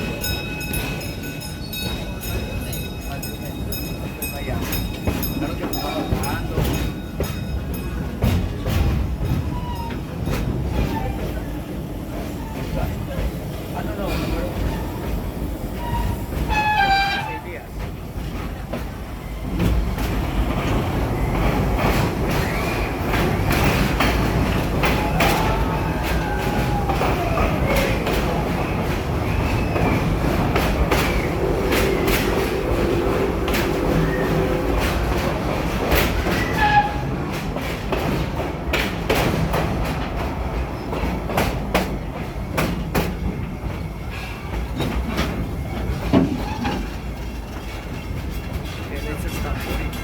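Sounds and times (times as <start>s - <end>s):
train rumbling on track: 0.0s - 50.0s
wheels clicking over rail joints: 0.0s - 50.0s
wheel squeal: 15.8s - 17.5s, 22.3s - 24.1s, 36.2s - 37.1s.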